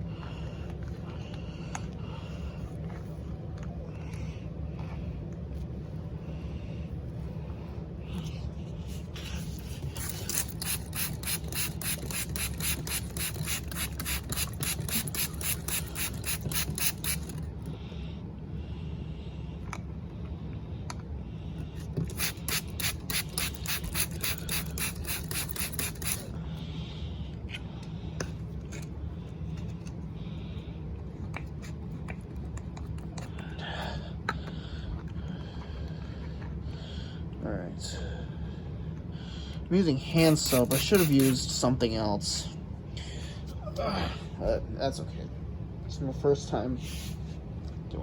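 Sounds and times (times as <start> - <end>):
cloth scrubbing a model car: 40.2 - 41.5.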